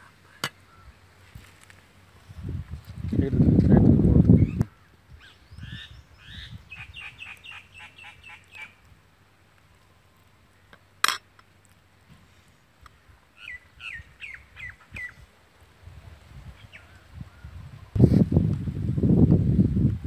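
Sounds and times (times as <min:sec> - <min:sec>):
small bird chirping: 0:04.3 - 0:08.9, 0:13.4 - 0:15.3.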